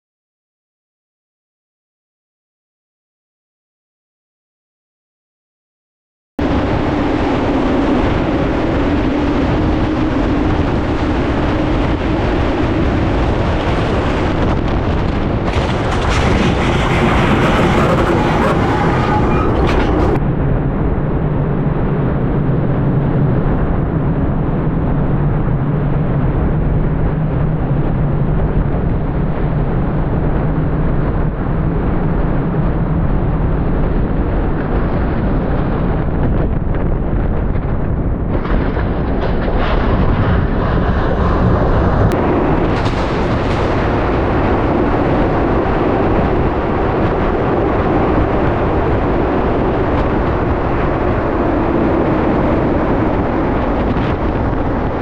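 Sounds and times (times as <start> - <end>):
roar of gale-force wind: 6.4 - 55.0.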